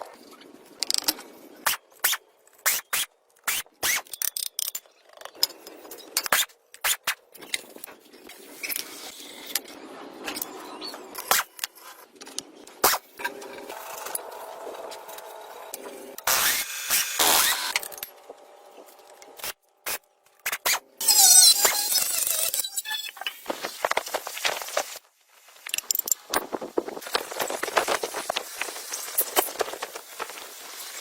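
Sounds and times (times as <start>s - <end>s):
tools and metal parts clicking: 0.8s - 1.3s, 3.4s - 7.9s.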